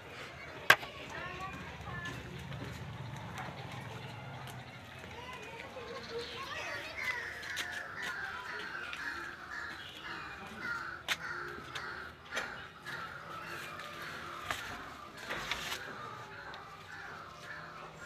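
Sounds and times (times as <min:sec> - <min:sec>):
chorus of bird calls: 0:00.0 - 0:18.0.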